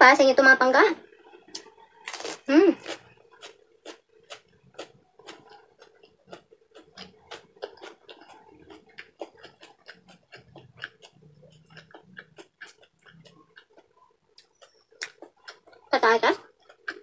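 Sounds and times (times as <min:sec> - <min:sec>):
faint steady hum: 0:00.0 - 0:17.0
close-miked chewing: 0:01.1 - 0:17.0
mouth clicks and lip smacks: 0:03.9 - 0:15.9.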